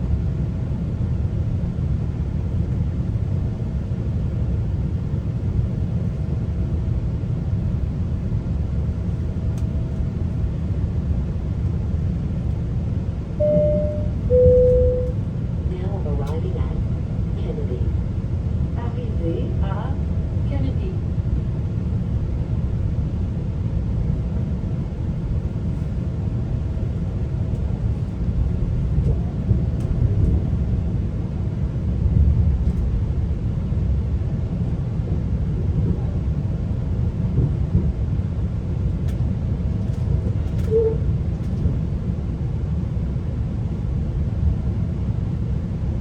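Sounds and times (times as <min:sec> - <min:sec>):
train rumbling on rails: 0:00.0 - 0:46.0
faint steady hum: 0:13.2 - 0:16.7.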